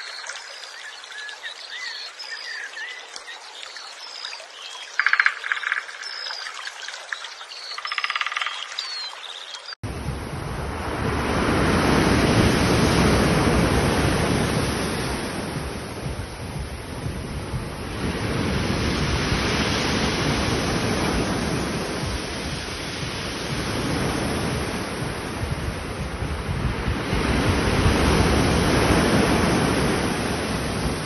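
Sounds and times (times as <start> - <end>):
waves breaking: 9.8 - 31.0.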